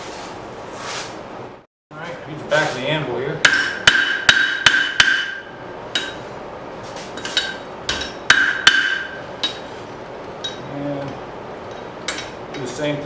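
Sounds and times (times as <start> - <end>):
hammer striking steel on anvil: 3.4 - 6.2, 7.2 - 9.7.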